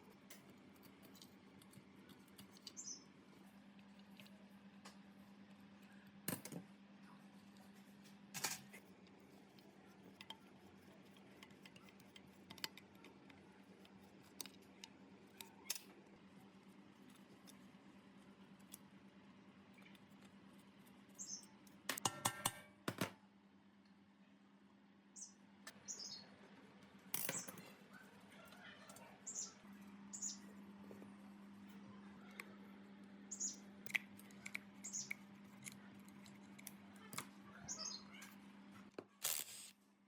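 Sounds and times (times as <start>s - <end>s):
faint steady hum: 0.0s - 40.0s
tools and parts clicking: 27.2s - 27.7s.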